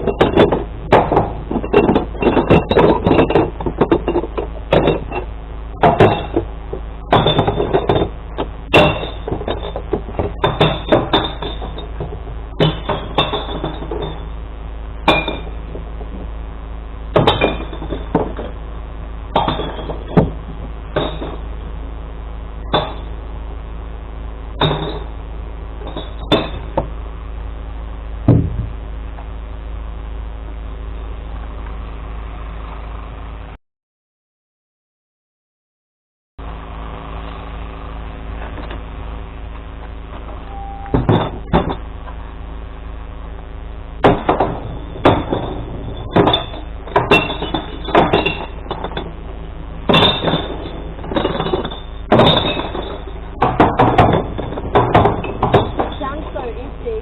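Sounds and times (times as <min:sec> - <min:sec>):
glass clanking into truck: 0:00.0 - 0:14.4, 0:15.0 - 0:16.2, 0:17.1 - 0:18.6, 0:19.3 - 0:21.6, 0:22.6 - 0:23.2, 0:24.6 - 0:25.2, 0:25.8 - 0:26.9, 0:40.2 - 0:41.9, 0:44.0 - 0:56.6.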